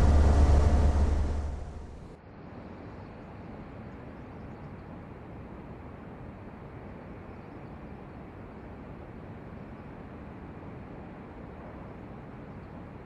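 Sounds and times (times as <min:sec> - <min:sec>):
airship engines droning: 0:00.0 - 0:02.2.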